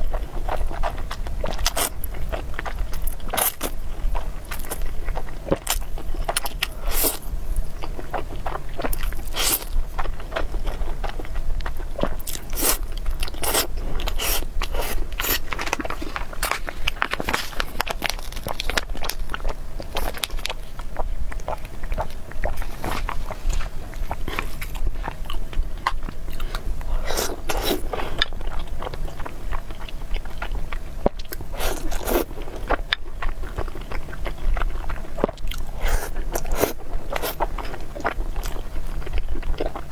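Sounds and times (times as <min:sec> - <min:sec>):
person chewing noodles: 0:00.0 - 0:39.9
wet mouth sounds: 0:11.6 - 0:19.2.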